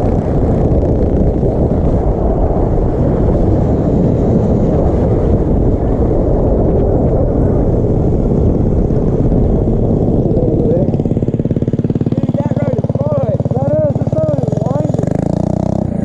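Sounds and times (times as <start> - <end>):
small motorbike engine running: 0.0 - 16.0
wind buffeting microphone: 0.0 - 16.0.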